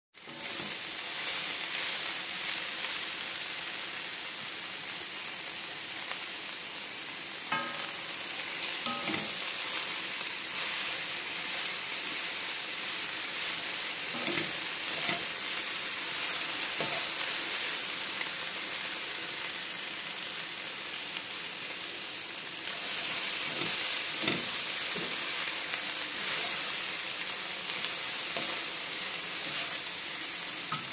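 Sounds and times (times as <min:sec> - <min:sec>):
food sizzling in hot oil: 0:00.2 - 0:30.9
spatula knocking and scraping pan: 0:08.8 - 0:09.5, 0:14.2 - 0:15.3, 0:16.8 - 0:17.2, 0:23.4 - 0:25.2.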